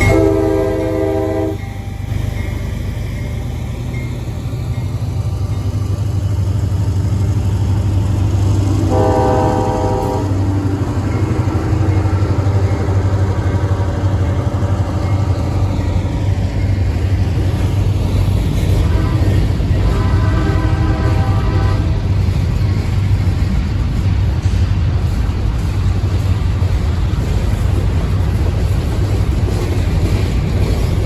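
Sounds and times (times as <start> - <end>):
train air horn: 0.0 - 1.6, 8.8 - 10.4, 18.8 - 22.0
locomotive engine drone: 0.0 - 31.0.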